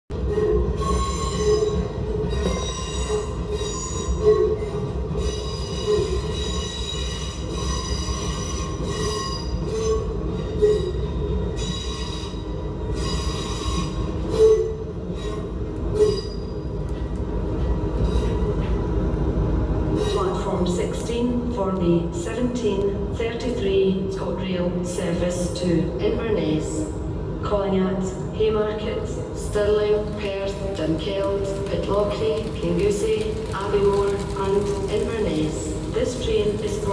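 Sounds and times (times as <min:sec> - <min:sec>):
train rumbling: 0:00.1 - 0:36.9
train wheels squealing: 0:00.3 - 0:16.8.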